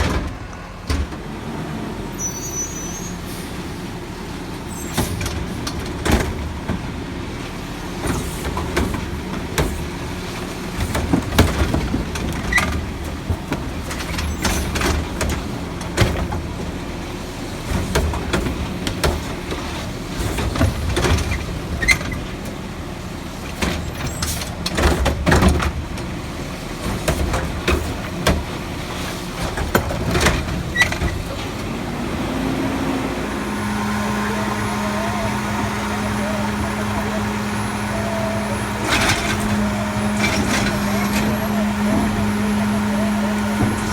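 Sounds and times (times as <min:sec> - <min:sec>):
diesel engine running: 0:00.0 - 0:43.9
rising tone from truck: 0:31.8 - 0:43.9.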